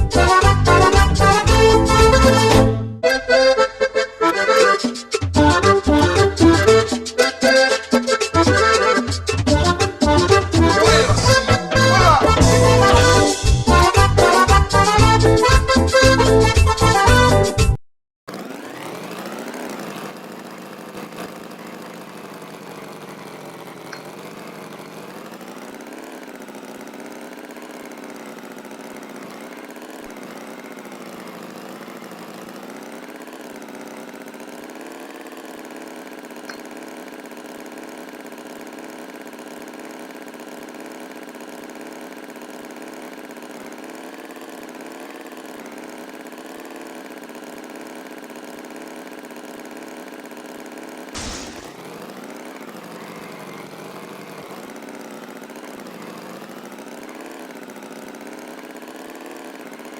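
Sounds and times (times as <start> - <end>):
tractor engine idling: 19.0 - 59.9.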